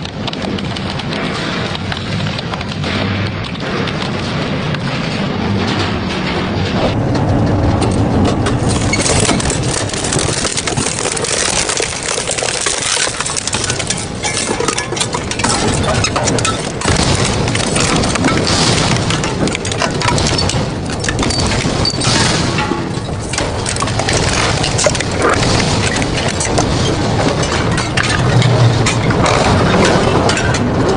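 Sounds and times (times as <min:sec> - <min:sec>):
shredder crushing metal: 0:08.3 - 0:30.9.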